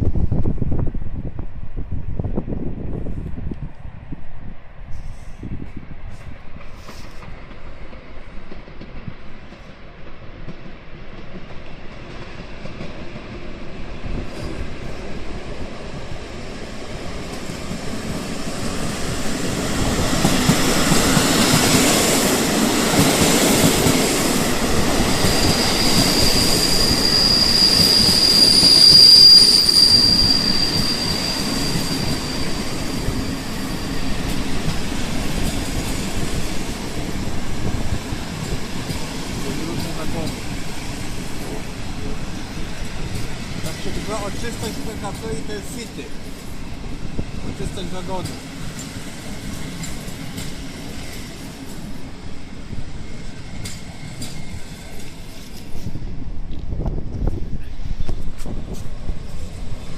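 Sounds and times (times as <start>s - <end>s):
train rumble and wheel noise: 0.0s - 59.9s
high-pitched wheel squeal: 25.2s - 34.3s.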